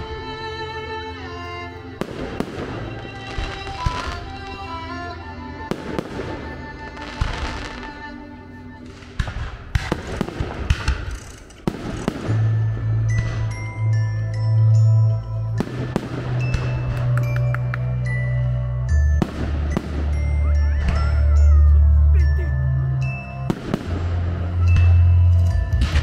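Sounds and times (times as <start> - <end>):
music: 0.0 - 26.0
fireworks crackling: 1.8 - 14.0
fireworks bursting with bangs: 1.9 - 14.0, 15.6 - 17.4, 19.2 - 21.2, 23.5 - 25.1, 25.7 - 26.0.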